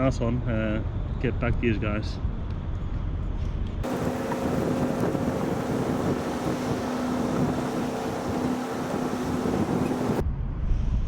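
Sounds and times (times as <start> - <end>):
wind noise on microphone: 2.2 - 11.0
droning engine hum: 3.8 - 10.2.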